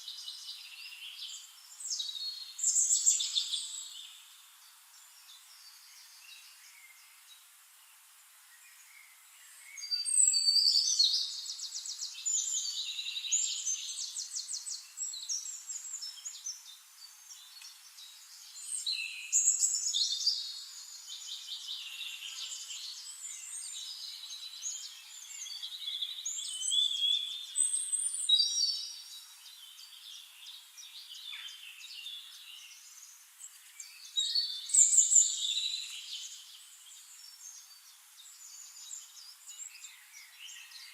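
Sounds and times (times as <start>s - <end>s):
songbirds warbling: 8.5s - 40.9s.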